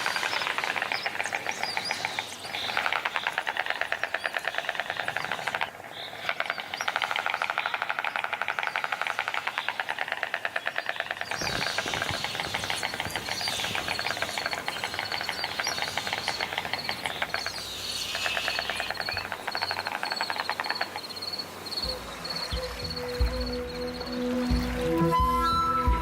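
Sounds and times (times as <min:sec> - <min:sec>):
storks bill-clattering: 0:00.0 - 0:24.9
music: 0:21.8 - 0:26.0.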